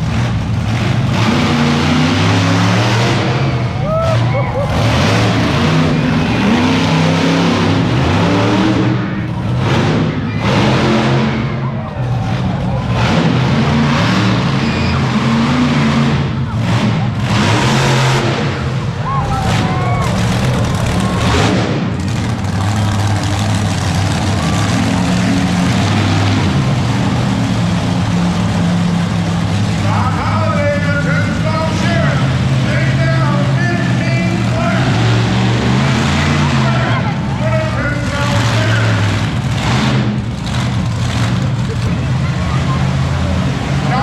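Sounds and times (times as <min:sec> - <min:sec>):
monster truck engine revving: 0:00.0 - 0:44.0.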